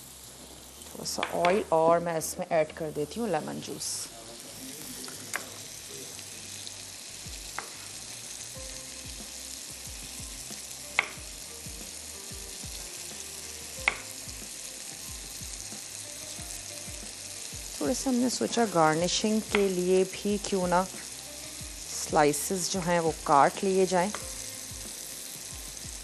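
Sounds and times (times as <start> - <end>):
chicken sizzling on grill pan: 0.0 - 26.0.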